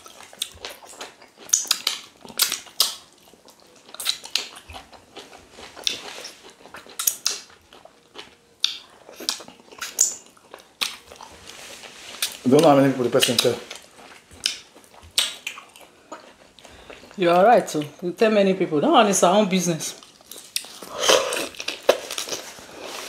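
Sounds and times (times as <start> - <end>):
people chewing: 0.0 - 18.0, 19.9 - 23.0
mouth smacks and clicks: 0.3 - 4.9, 8.6 - 11.0, 13.2 - 16.4.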